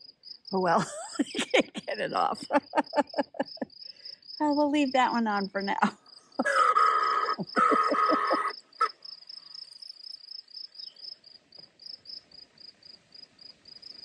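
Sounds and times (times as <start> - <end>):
cricket chirping: 0.0 - 14.0.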